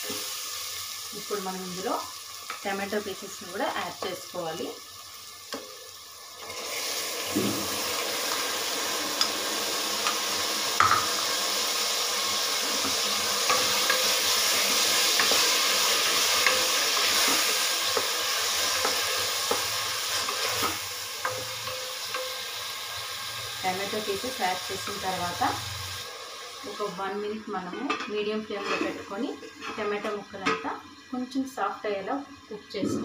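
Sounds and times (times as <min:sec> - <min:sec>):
food sizzling in hot oil: 0:00.0 - 0:33.0.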